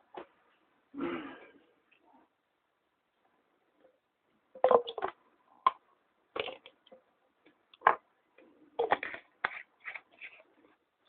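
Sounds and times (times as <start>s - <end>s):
small hard objects clacking: 4.6s - 5.8s.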